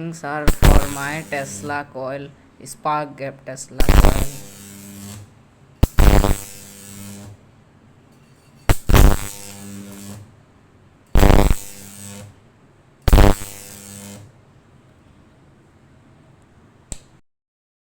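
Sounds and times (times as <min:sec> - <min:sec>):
buzzing high-voltage arc: 0:00.4 - 0:01.9, 0:03.6 - 0:07.5, 0:08.6 - 0:10.4, 0:11.1 - 0:14.4.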